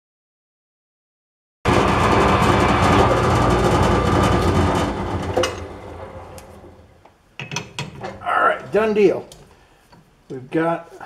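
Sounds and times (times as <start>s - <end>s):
lathe winding down: 1.7s - 7.0s
metal lathe machining: 1.7s - 7.0s.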